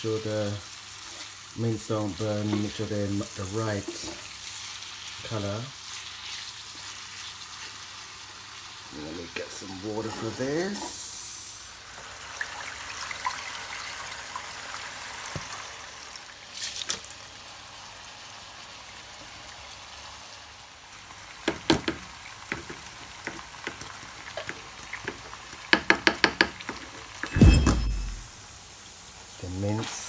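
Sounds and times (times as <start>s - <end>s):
water running from a tap: 8.9s - 15.8s.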